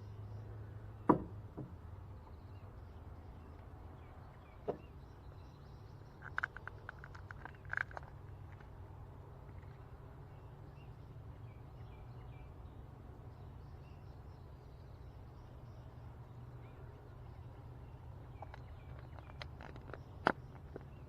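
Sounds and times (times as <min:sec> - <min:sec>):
birds chirping: 0:09.5 - 0:21.0.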